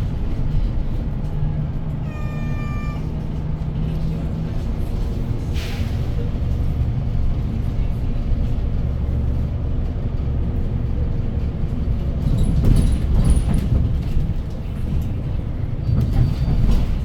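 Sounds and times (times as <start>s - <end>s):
bus engine and road rumble: 0.0s - 17.0s
high squeaks and rattles: 2.0s - 3.1s.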